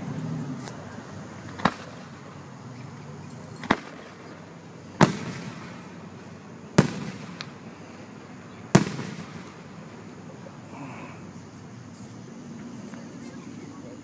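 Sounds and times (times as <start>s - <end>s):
firework booms: 1.5s - 2.3s, 3.6s - 10.1s.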